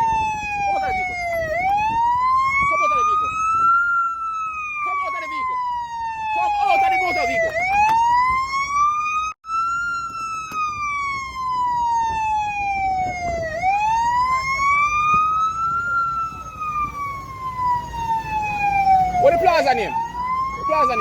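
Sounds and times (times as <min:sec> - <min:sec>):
police siren wailing: 0:00.0 - 0:21.0.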